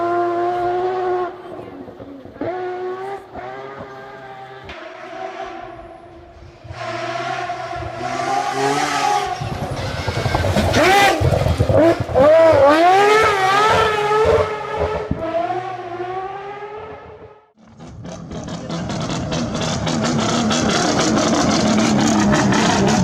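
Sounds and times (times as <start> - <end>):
engine idling and revving: 0.0 - 23.0.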